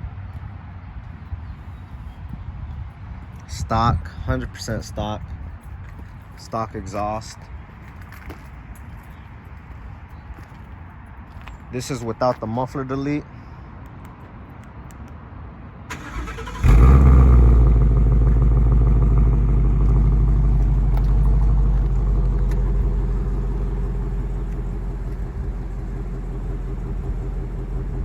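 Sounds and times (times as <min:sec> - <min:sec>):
car engine starting and idling: 0:15.9 - 0:28.0.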